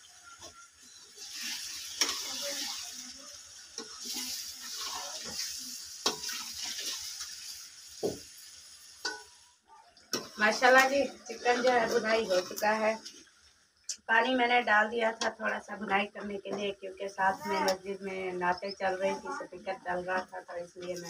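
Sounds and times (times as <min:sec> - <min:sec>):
chicken sizzling in a pot: 0:00.0 - 0:19.3, 0:20.1 - 0:21.0
metal spoon scraping a pot: 0:00.4 - 0:02.9.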